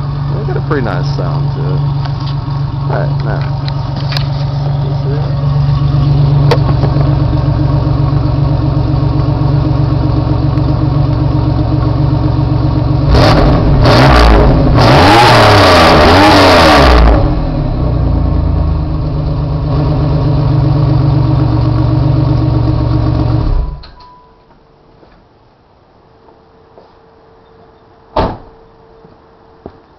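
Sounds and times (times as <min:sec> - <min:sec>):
car engine idling and revving: 0:00.0 - 0:23.9.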